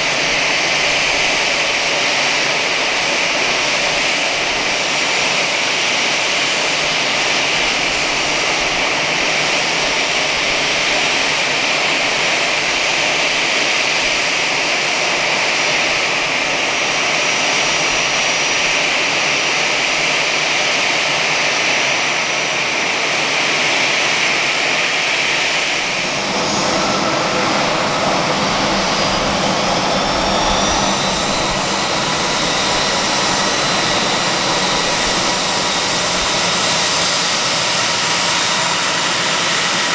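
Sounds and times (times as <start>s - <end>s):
jet engines whining: 0.0s - 39.9s
thin rising whine: 25.7s - 37.5s.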